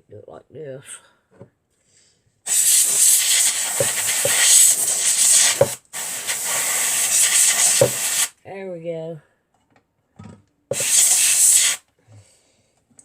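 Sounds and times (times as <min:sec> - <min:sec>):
compressed air spraying: 0:02.5 - 0:08.3, 0:10.7 - 0:11.8.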